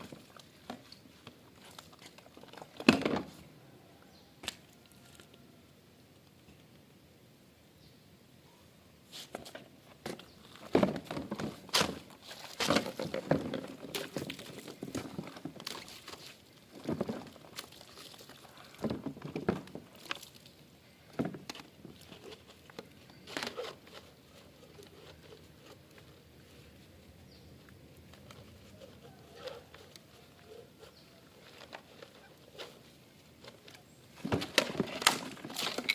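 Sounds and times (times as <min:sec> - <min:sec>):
plastic parts clattering in water: 0:10.6 - 0:20.4, 0:34.2 - 0:35.9.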